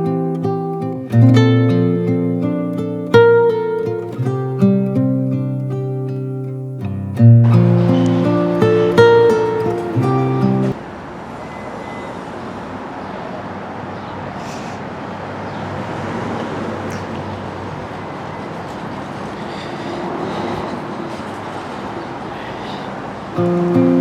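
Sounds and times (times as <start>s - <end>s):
passing vehicle traffic: 7.4s - 24.0s.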